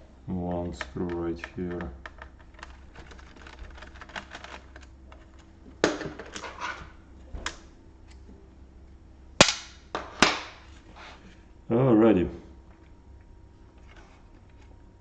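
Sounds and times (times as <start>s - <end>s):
laptop parts and tools clicking: 0.7s - 5.5s.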